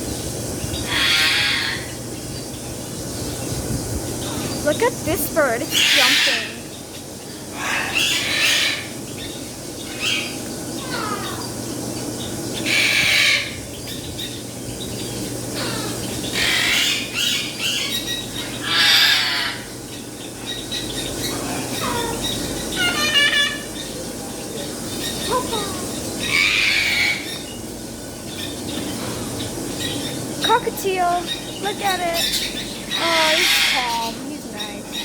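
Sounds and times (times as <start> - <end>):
parrots squawking harshly: 0.8 - 2.0, 5.7 - 6.7, 7.4 - 9.0, 9.8 - 11.5, 12.6 - 13.7, 15.5 - 19.8, 20.9 - 24.0, 25.0 - 27.4, 31.2 - 35.0.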